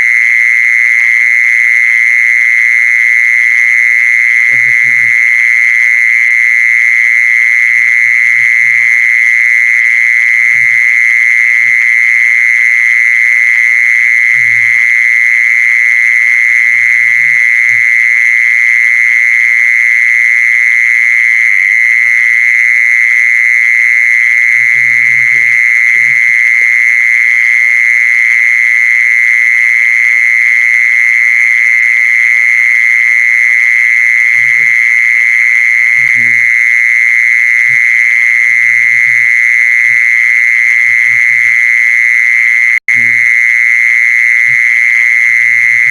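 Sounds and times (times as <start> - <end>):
high-pitched animal trill: 44.4 - 45.9.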